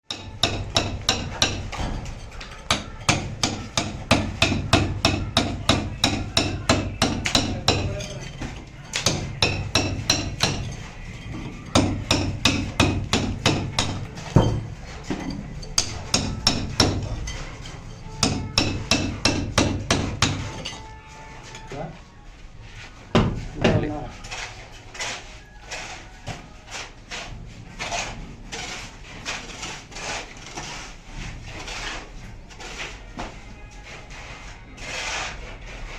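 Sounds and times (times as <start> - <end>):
hand hammer striking: 0.1 - 8.2, 8.9 - 10.9, 11.7 - 17.2, 18.1 - 21.0.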